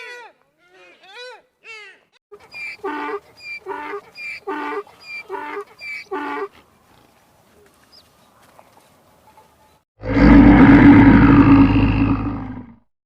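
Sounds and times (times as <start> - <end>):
animal calling: 0.0 - 6.6.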